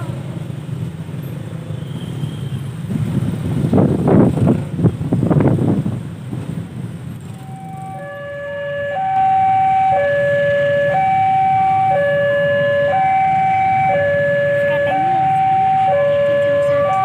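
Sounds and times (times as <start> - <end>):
level crossing alarm two-tone: 7.4 - 17.0.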